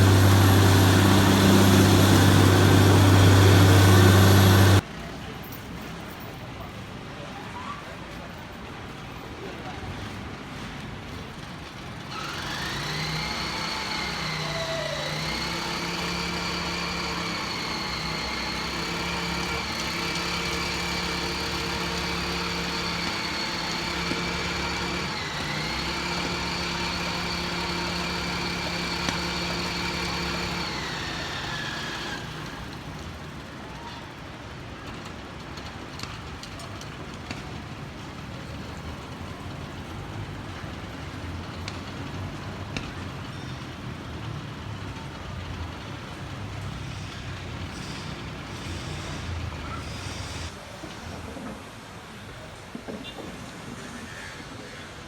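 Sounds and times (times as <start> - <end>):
engine hum: 0.0 - 4.8, 11.7 - 33.7.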